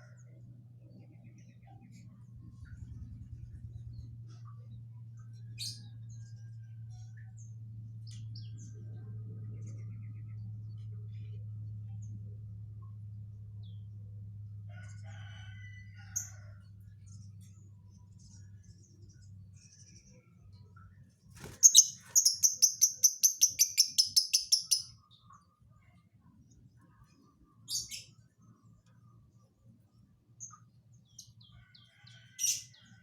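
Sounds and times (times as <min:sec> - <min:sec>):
lovebird calls: 0:21.4 - 0:24.9
lovebird trilling: 0:21.4 - 0:24.9.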